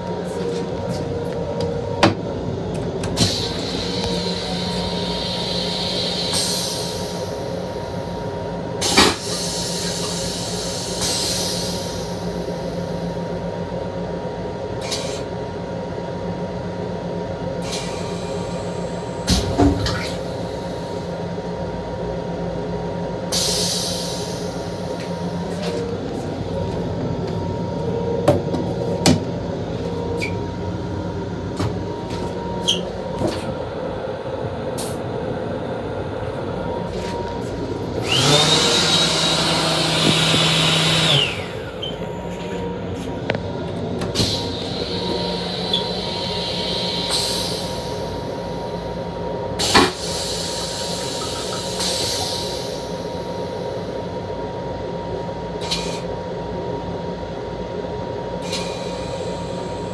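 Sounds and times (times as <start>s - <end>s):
train running hum: 0.0s - 59.9s.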